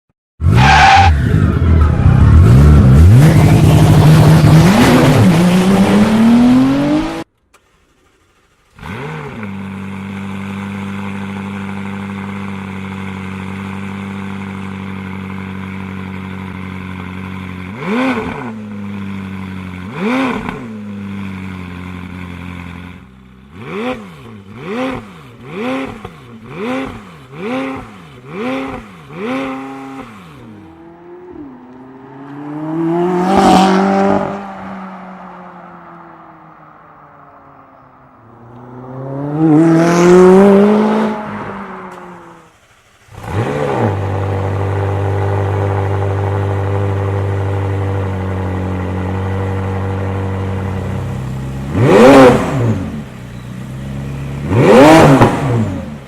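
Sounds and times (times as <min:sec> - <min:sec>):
car engine revving: 0:00.4 - 0:56.0
car engine idling: 0:07.3 - 0:17.7, 0:30.0 - 0:56.0.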